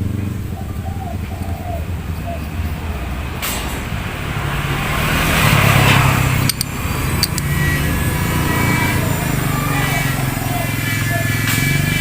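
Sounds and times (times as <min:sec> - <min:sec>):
vehicle engine running: 0:00.0 - 0:12.0
sharp clicks: 0:06.4 - 0:07.5.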